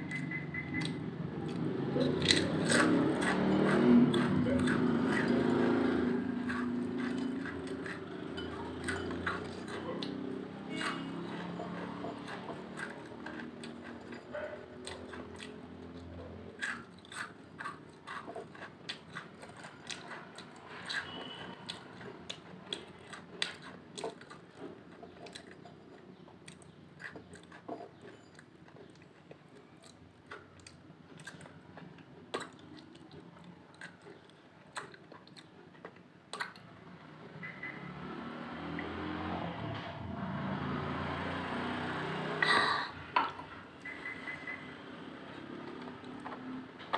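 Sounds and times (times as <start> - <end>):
potato chips crunching: 0.8 - 24.4.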